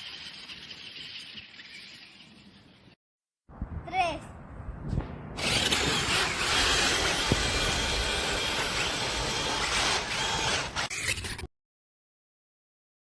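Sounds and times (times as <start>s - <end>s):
remote-control truck motor rushing: 5.4s - 11.5s.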